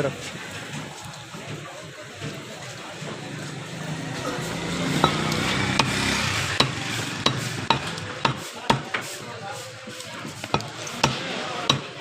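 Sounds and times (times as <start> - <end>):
steady background noise: 0.0 - 12.0
blade chopping on cutting block: 5.0 - 9.0, 10.4 - 12.0.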